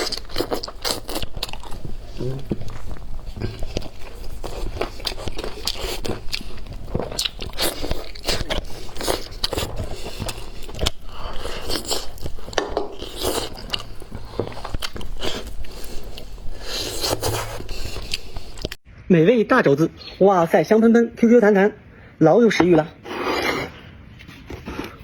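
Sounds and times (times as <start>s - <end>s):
crunchy chewing: 0.0s - 18.8s.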